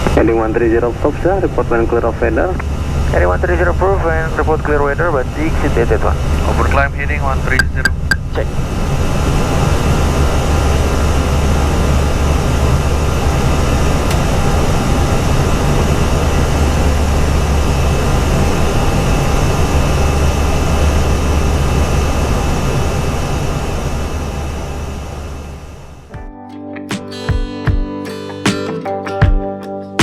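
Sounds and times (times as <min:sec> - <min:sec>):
jet engines droning: 0:00.3 - 0:26.1.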